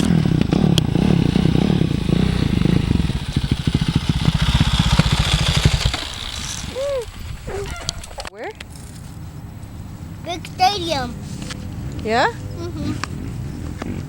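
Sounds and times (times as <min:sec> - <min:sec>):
dirt bike engine running: 0:00.0 - 0:08.3.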